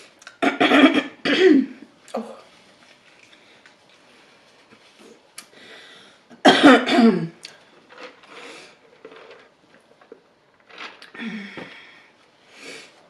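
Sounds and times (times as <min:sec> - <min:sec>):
woman coughing: 0:00.4 - 0:01.8, 0:06.4 - 0:07.4
breathing: 0:05.5 - 0:06.2, 0:11.2 - 0:13.0.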